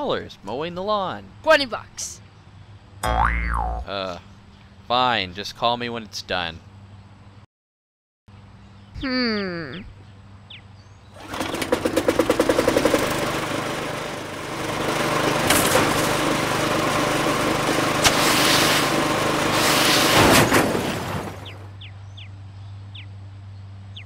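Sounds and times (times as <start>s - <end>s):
lawnmower engine running: 11.2s - 21.7s.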